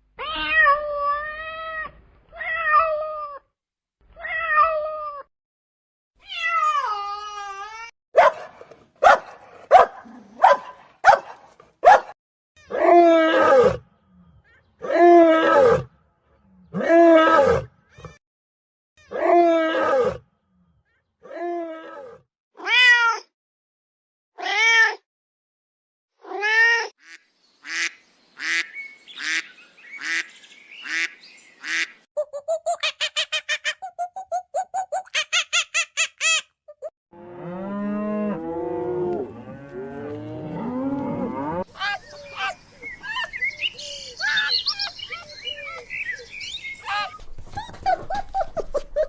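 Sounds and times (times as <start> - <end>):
cat meowing: 0.2 - 3.4.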